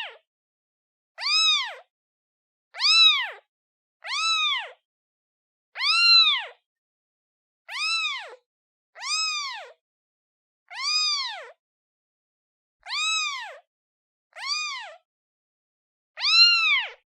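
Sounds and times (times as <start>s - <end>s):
kitten meowing: 1.2s - 1.9s, 2.8s - 4.8s, 5.8s - 6.6s, 7.7s - 8.4s, 9.0s - 9.8s, 10.7s - 11.6s, 12.8s - 13.6s, 14.3s - 15.0s, 16.2s - 17.0s.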